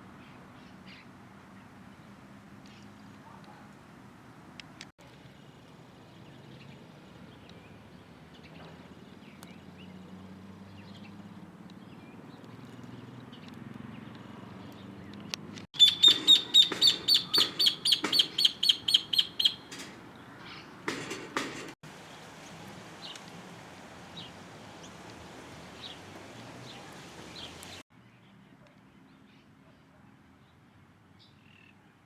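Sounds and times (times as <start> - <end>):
bird chirping sharply: 15.8 - 20.8.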